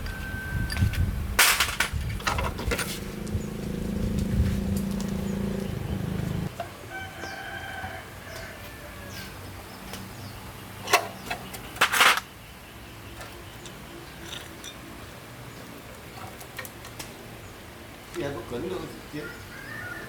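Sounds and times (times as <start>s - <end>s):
rooster crowing: 0.0s - 0.7s, 6.4s - 9.5s, 19.1s - 20.0s
engine running: 0.0s - 6.5s.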